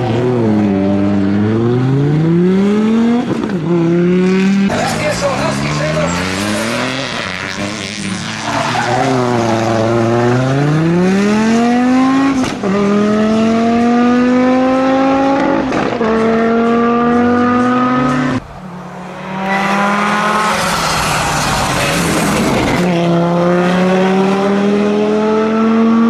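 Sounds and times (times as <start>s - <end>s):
rally car engine revving hard: 0.0s - 18.4s, 19.2s - 26.0s.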